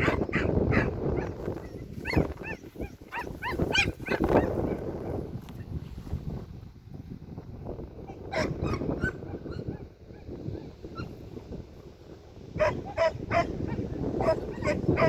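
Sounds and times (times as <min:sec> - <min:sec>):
dog barking: 0:00.0 - 0:01.4, 0:02.0 - 0:04.5, 0:08.3 - 0:09.9, 0:12.6 - 0:15.0
wind rumbling on microphone: 0:00.0 - 0:15.0.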